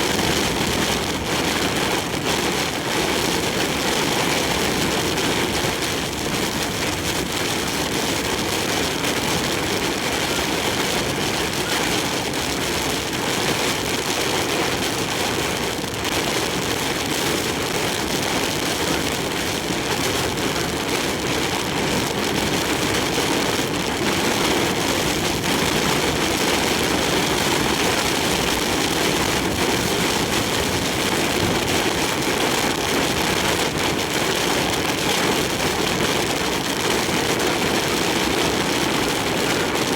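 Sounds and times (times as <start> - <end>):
heavy rain on truck: 0.0 - 39.9
road noise: 0.0 - 39.9
strong crosswind: 0.0 - 39.9.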